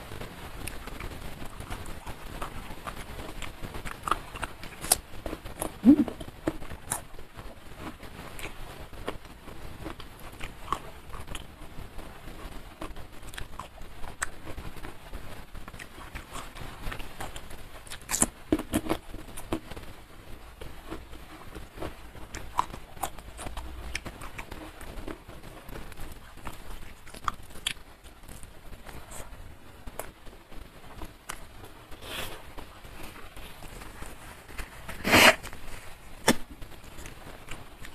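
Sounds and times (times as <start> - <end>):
wet chewing: 0.6 - 7.1, 20.6 - 29.3
mouth clicks: 5.6 - 6.3.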